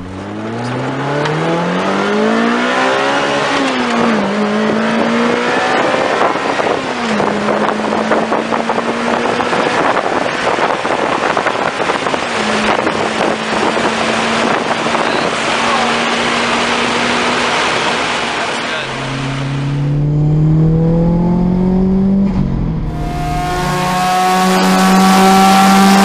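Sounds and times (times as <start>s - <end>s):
car engine revving: 0.0s - 26.0s
wind and road noise: 0.0s - 26.0s.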